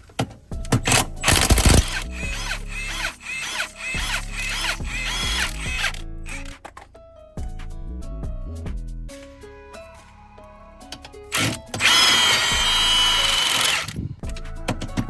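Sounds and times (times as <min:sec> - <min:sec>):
rhythmic background music: 0:00.1 - 0:15.0
impact wrench bursts: 0:00.8 - 0:06.6, 0:11.4 - 0:14.0.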